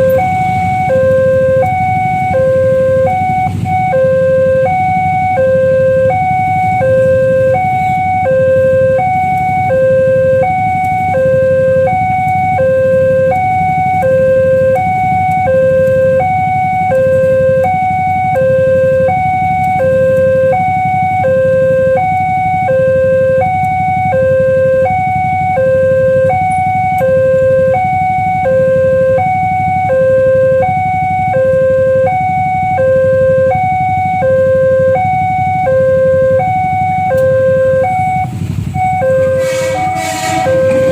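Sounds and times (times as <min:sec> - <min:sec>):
level crossing two-tone alarm: 0:00.0 - 0:40.9.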